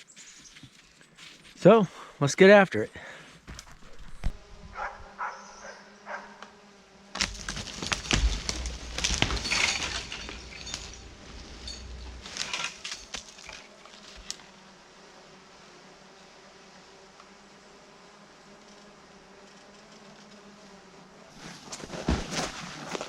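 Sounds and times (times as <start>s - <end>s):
frozen branches cracking and snapping: 7.1s - 14.4s.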